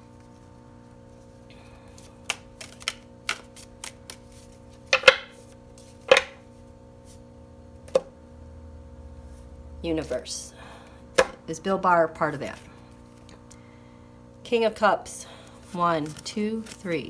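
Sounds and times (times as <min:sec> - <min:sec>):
faint steady hum: 0:00.0 - 0:17.0
cards being shuffled: 0:00.1 - 0:07.2, 0:12.4 - 0:13.6, 0:15.5 - 0:17.0.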